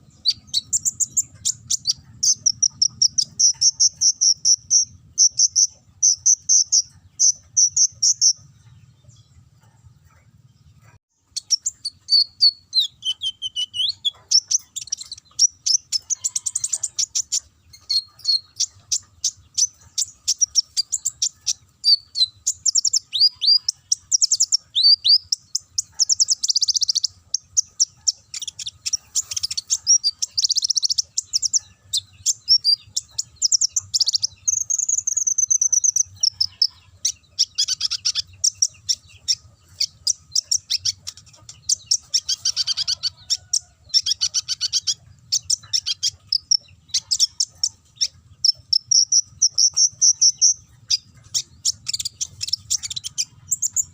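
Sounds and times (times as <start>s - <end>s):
sunbird singing high chirps and trills: 0.0s - 53.9s.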